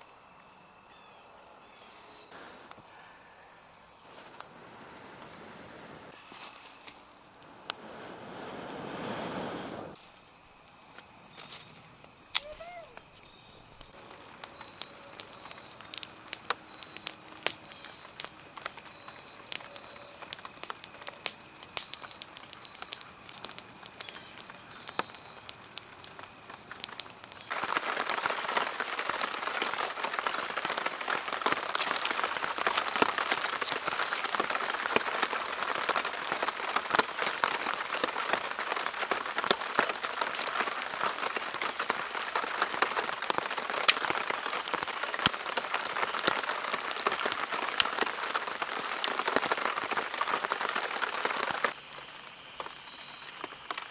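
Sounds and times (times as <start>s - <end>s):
heavy rain hiss: 0.0s - 53.9s
drips ticking on a tarp: 12.0s - 53.9s.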